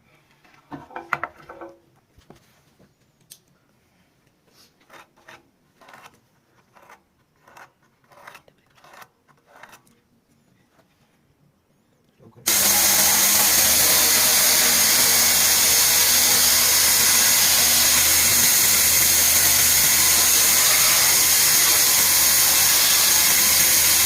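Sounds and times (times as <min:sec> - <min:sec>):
scraping strokes on wood: 0:04.5 - 0:09.8.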